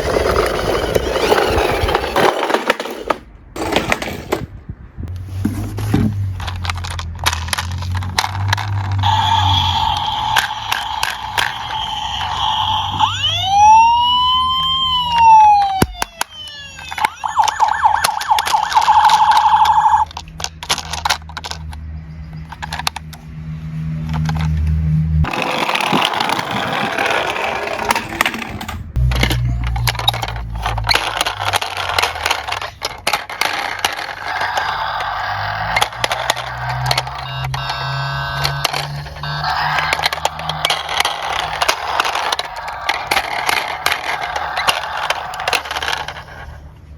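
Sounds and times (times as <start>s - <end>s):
toy cars clicking and clattering: 0.0s - 4.5s, 5.9s - 23.3s, 24.0s - 46.9s
police siren wailing: 8.8s - 20.1s, 33.5s - 46.6s.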